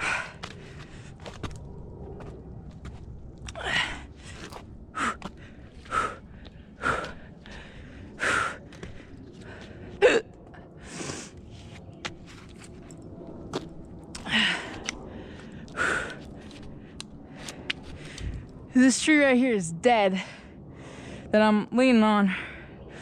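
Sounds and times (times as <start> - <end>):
woman breathing heavily and gasping: 0.0 - 1.4, 3.5 - 11.6, 14.1 - 18.5, 22.3 - 23.0.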